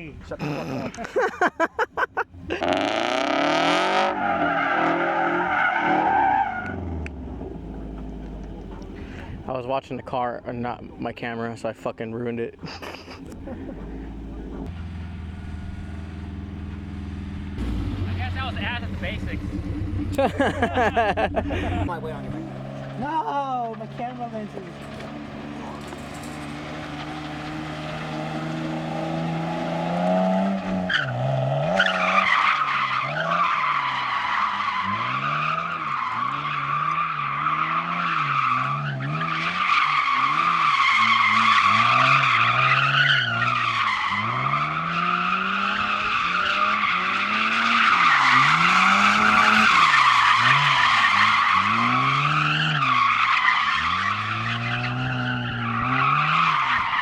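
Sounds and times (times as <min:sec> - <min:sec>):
car engine revving: 0:02.2 - 0:09.5, 0:12.6 - 0:57.0
tire squeal: 0:02.5 - 0:09.4, 0:21.8 - 0:57.0.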